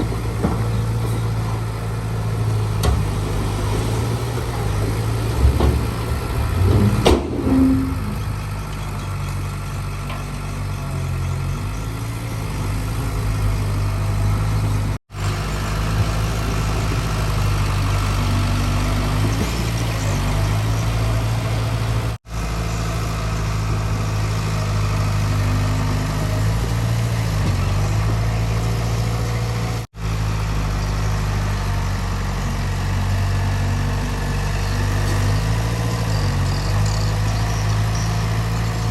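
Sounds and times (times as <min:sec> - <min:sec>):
knocks and clatter: 0:00.0 - 0:01.5, 0:04.4 - 0:08.3
heavy diesel engine running: 0:00.0 - 0:38.9.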